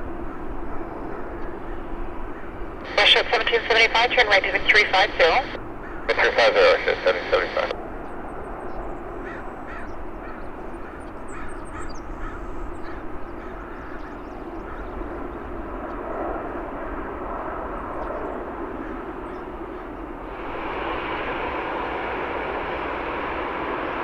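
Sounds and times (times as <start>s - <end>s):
airport rumble: 2.8s - 7.7s, 20.2s - 24.0s
crows cawing: 9.2s - 15.0s
jet hiss: 20.3s - 24.0s.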